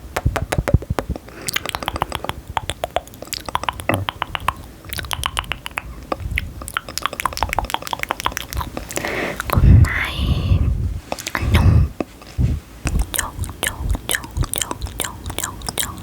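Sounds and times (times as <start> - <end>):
crackly chewing clicks: 0.4 - 9.6, 12.9 - 16.0.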